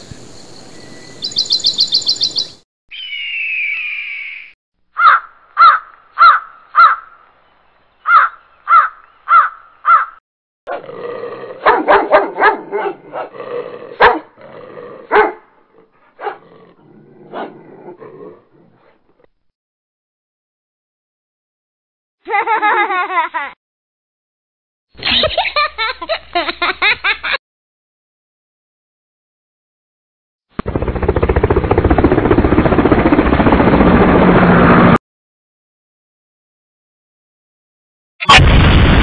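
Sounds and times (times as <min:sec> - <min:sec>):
birds chirping in a trill: 0:00.1 - 0:10.2.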